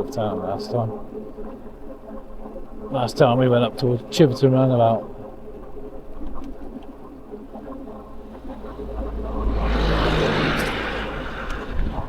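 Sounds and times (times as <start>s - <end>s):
car passing: 7.9s - 12.0s.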